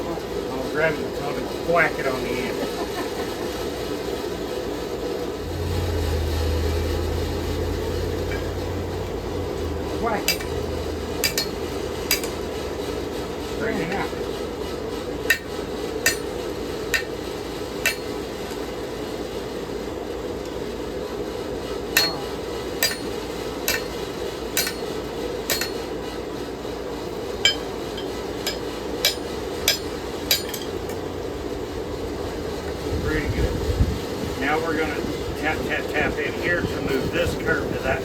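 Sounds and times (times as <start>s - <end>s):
steady low hum: 0.0s - 38.0s
hammer striking steel on anvil: 10.1s - 12.9s, 15.2s - 18.3s, 22.0s - 26.0s, 27.4s - 31.0s.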